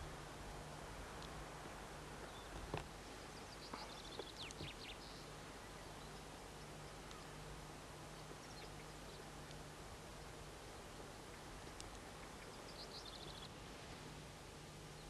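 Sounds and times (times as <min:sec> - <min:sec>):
faint low hum: 0:00.0 - 0:15.0
steady hiss: 0:00.0 - 0:15.0
soft clicks: 0:04.2 - 0:04.8, 0:11.6 - 0:12.5.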